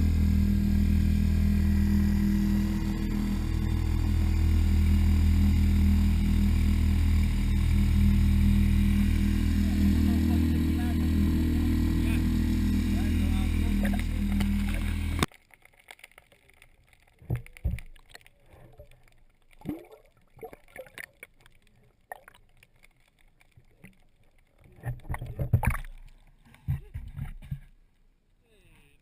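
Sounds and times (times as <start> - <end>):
boat engine drone: 0.0 - 15.3
water sounds: 0.0 - 28.0.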